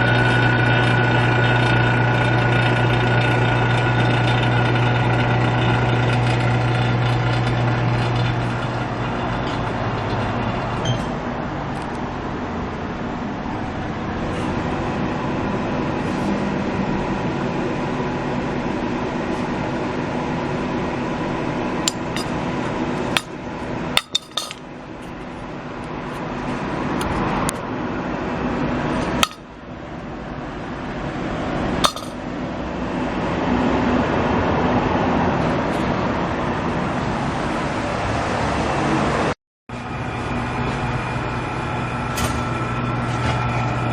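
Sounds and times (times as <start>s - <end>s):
machine running with hum: 0.0s - 23.9s.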